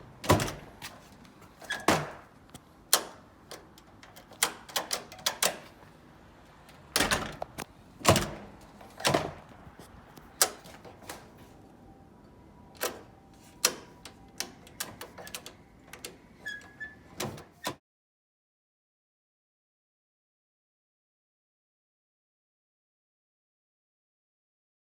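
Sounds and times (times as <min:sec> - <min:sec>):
door latch clicks and knocks: 0:02.9 - 0:05.7, 0:06.9 - 0:09.5.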